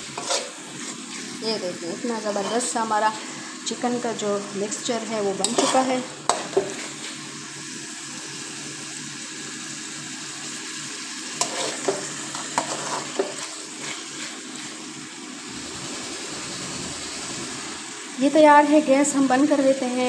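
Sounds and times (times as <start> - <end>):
metal spoon scraping a pan: 0.0 - 1.4, 2.2 - 2.8, 5.3 - 7.3, 11.4 - 14.8
food sizzling in oil: 0.0 - 20.0.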